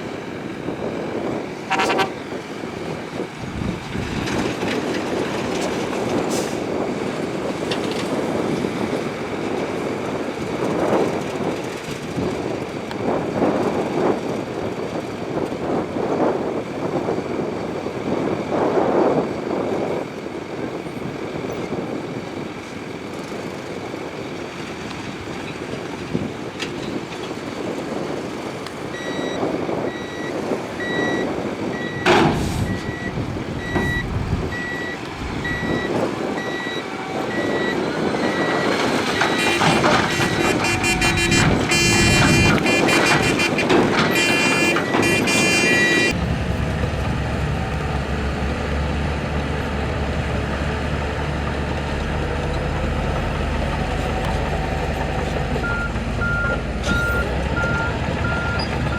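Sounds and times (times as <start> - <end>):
diesel engine surging under load: 0.0 - 58.9
reversing alarm beeping: 28.9 - 46.2, 55.6 - 58.9.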